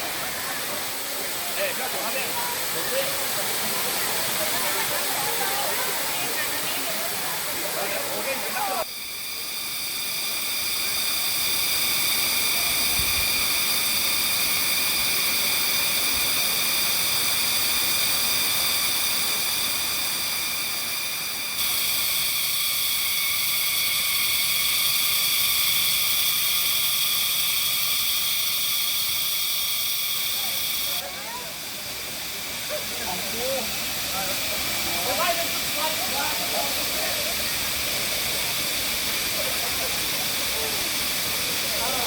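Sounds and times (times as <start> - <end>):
waterfall rushing: 0.0 - 8.8
insects droning shrilly: 0.0 - 42.0.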